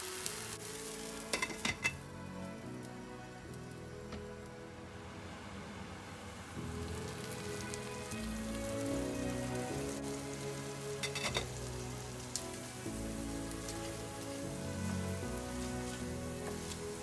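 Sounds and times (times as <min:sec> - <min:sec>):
meat sizzling in oil: 0:00.0 - 0:02.0, 0:06.5 - 0:17.0
soft background music: 0:00.0 - 0:17.0.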